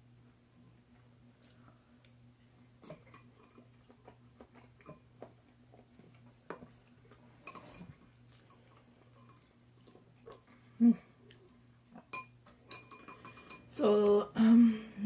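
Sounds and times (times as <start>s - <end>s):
low steady hum: 0.0s - 15.0s
chewing: 2.8s - 12.1s.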